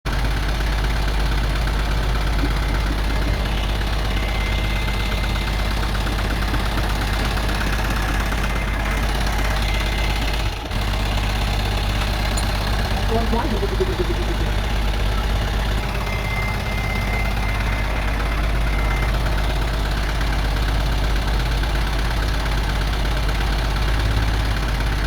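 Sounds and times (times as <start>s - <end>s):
excavator engine running: 0.1s - 25.0s
light rapid ticking: 11.4s - 17.1s.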